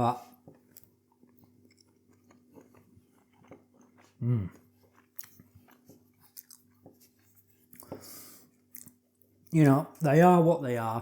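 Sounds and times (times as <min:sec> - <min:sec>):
person chewing crunchy food: 0:00.3 - 0:09.6
person humming mm: 0:04.2 - 0:04.6.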